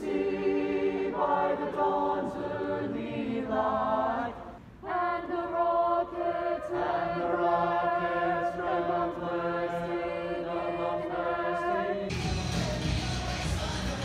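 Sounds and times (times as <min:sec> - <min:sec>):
choir singing held notes: 0:00.0 - 0:14.0
recorded pop song: 0:11.0 - 0:14.0.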